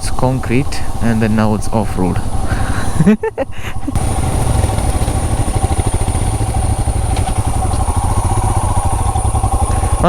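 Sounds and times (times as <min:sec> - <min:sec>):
motorcycle engine running: 0:03.8 - 0:10.0.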